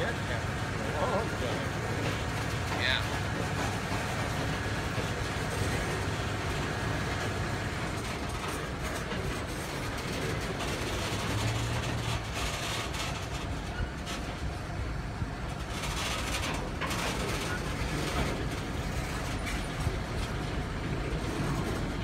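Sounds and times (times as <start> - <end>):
steel wheels rumbling on rail: 0.0 - 22.0.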